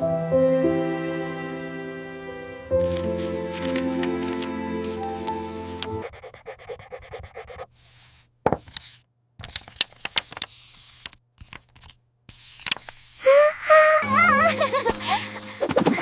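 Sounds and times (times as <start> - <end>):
background music: 0.0 - 6.1, 14.0 - 16.0
taps and scrapes: 8.4 - 13.0.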